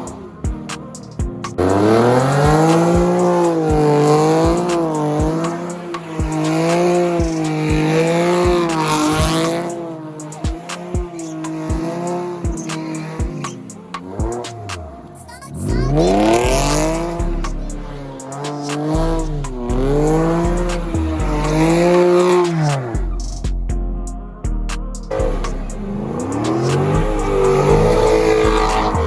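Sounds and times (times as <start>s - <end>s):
car engine revving high: 1.6s - 23.4s, 25.1s - 29.0s.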